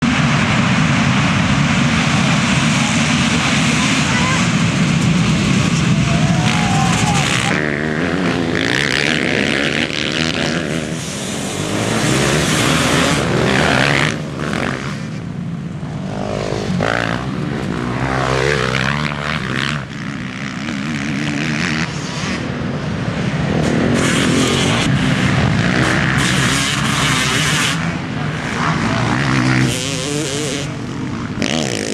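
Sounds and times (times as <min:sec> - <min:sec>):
motocross bike engines revving: 0:00.0 - 0:31.9.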